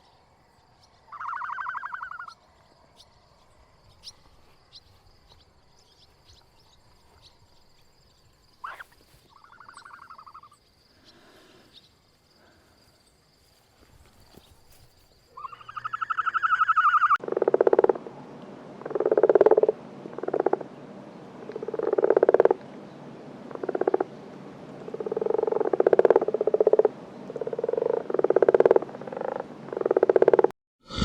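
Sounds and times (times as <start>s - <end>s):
animal rattling pulsed calls: 1.1s - 2.4s, 8.6s - 10.6s, 15.3s - 17.2s
animal rising tonal call: 15.4s - 17.2s.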